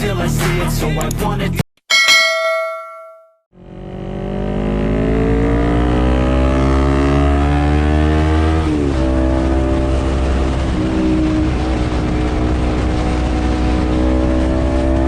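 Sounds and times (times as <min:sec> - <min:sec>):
motorcycle engine revving: 0:03.6 - 0:15.0.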